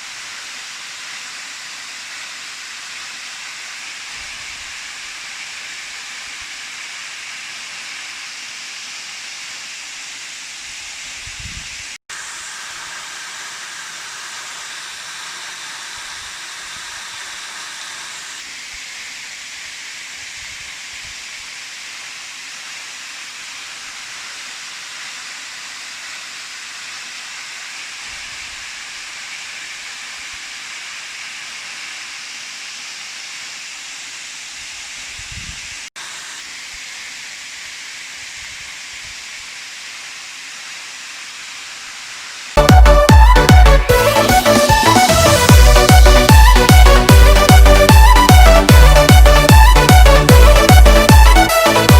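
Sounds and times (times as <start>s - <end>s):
waterfall rushing: 39.4s - 51.9s.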